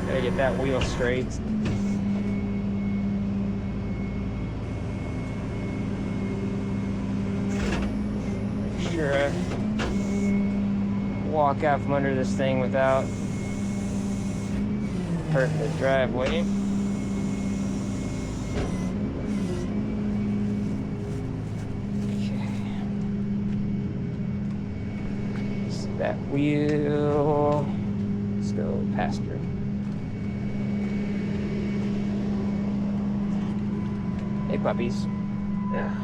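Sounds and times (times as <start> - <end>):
truck engine idling: 0.0 - 2.8, 3.7 - 23.3.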